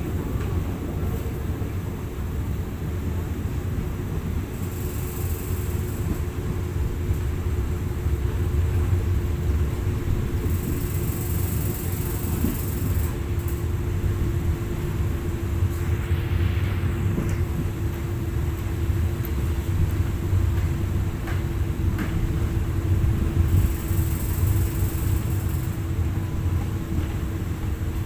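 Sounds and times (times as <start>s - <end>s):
train rumbling on track: 0.0s - 28.0s
wind rushing over microphone: 0.0s - 28.0s
steady hum: 4.2s - 28.0s
high hiss: 14.4s - 19.6s.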